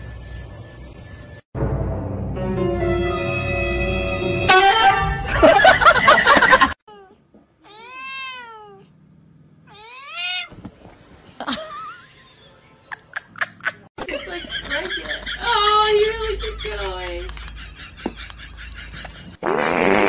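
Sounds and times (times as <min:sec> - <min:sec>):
loud music: 0:01.6 - 0:05.6
cat yowling: 0:06.9 - 0:08.9, 0:09.7 - 0:10.5.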